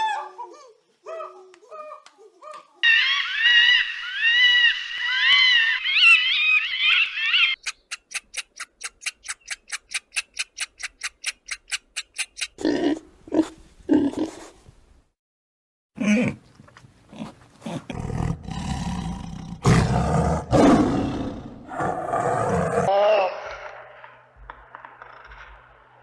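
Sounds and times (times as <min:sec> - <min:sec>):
chorus of chirping animal calls: 0:02.8 - 0:08.1, 0:17.9 - 0:22.9.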